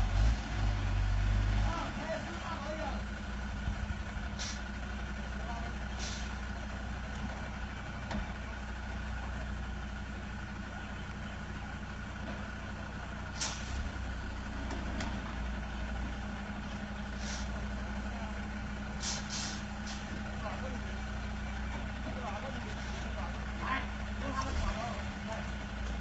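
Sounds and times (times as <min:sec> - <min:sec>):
large engine idling: 0:00.0 - 0:26.0
short hisses: 0:04.4 - 0:04.7, 0:13.4 - 0:13.8, 0:17.2 - 0:17.5, 0:19.0 - 0:20.1.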